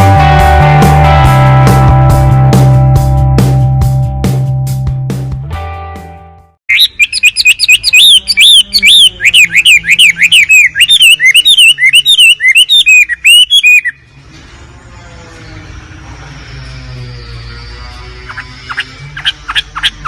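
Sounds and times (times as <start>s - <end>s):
bird singing chirps and whistles: 6.7s - 14.0s.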